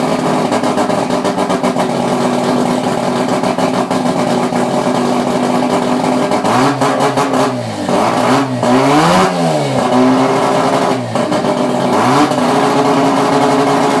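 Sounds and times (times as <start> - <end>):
rotary engine revving: 6.2 - 14.0.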